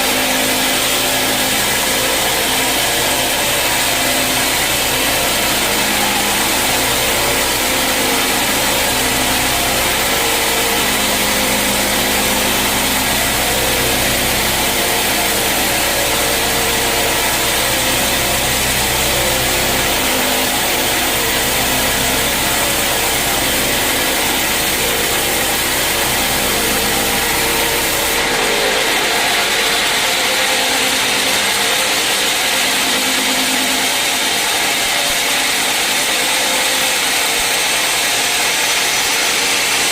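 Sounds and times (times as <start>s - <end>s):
saw cutting through a log: 0.0s - 39.9s.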